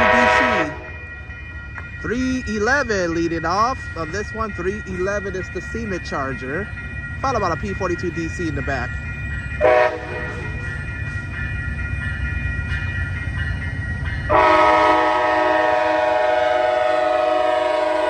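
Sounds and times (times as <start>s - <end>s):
locomotive horn chord: 0.0s - 0.9s, 9.6s - 10.5s, 14.3s - 18.0s
passenger train rumbling past: 0.0s - 18.0s.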